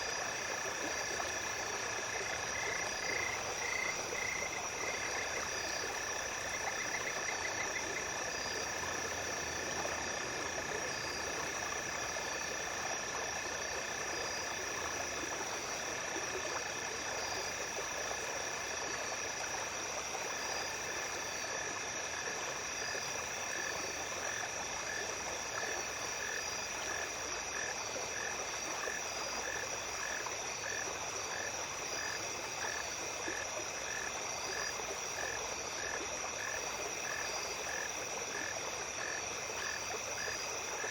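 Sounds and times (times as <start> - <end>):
insects chirping: 0.0 - 40.9
low pulsing insect call: 0.0 - 40.9
stream water running: 0.0 - 40.9.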